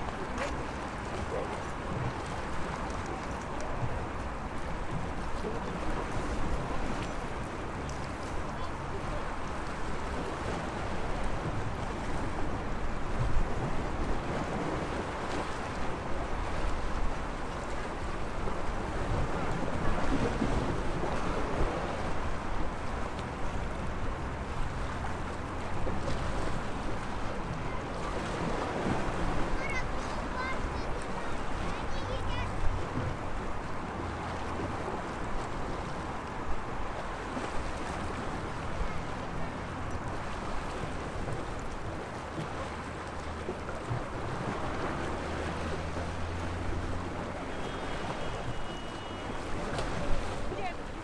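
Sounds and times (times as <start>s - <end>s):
sea waves washing ashore: 0.0s - 51.0s.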